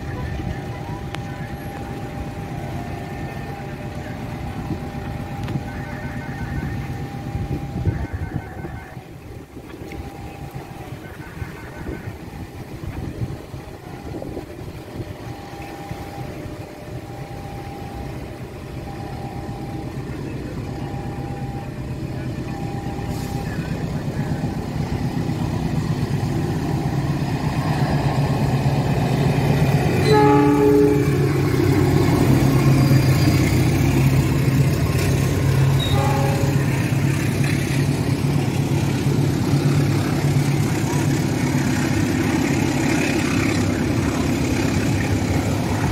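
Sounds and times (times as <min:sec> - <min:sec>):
train rumbling past: 0:00.0 - 0:45.9
train horn blast: 0:09.9 - 0:12.7, 0:29.9 - 0:37.4.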